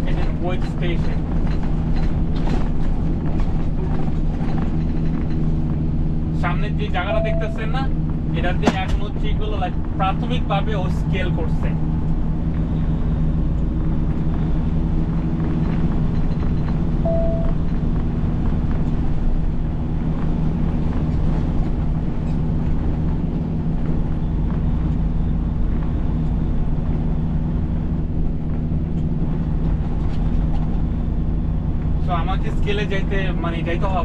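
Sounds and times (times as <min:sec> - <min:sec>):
diesel truck engine running: 0:00.0 - 0:34.0
road noise: 0:00.0 - 0:34.0
short high beep: 0:07.1 - 0:07.7, 0:17.0 - 0:17.6.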